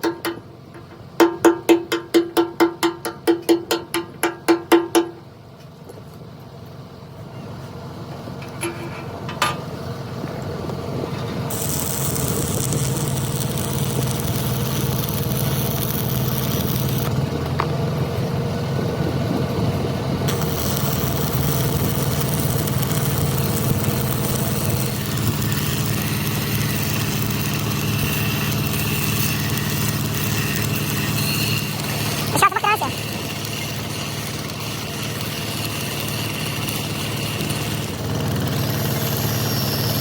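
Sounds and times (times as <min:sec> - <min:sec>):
engine running: 0:04.1 - 0:40.0.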